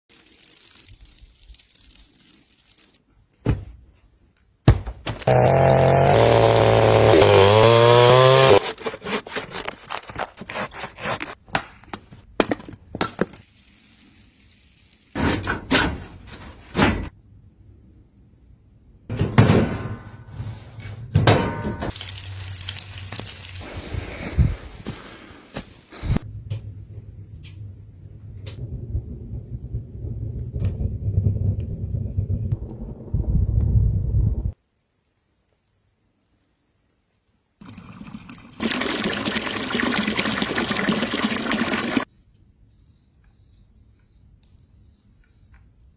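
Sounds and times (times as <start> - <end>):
sharp knocks and thunks: 3.4 - 3.8, 4.6 - 5.2
loud motor running: 5.3 - 8.6.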